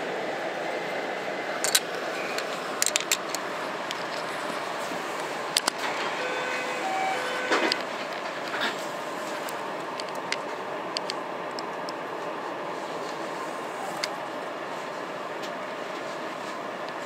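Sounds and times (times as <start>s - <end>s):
train wheels rumbling on rail: 0.0s - 17.0s
faint wheel squeal: 6.0s - 7.6s.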